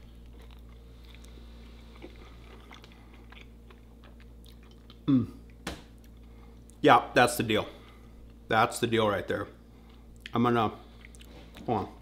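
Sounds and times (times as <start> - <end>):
man chewing crunchy food: 0.0 - 6.8, 9.8 - 11.6.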